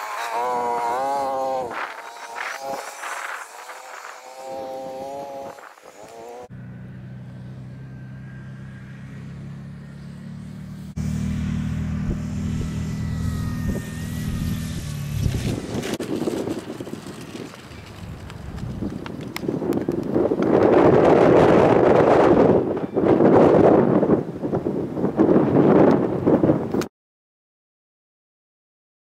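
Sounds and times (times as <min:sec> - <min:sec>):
wind rumbling on microphone: 0:00.0 - 0:06.5, 0:11.0 - 0:26.9
electric motor and propeller whining: 0:00.0 - 0:26.9.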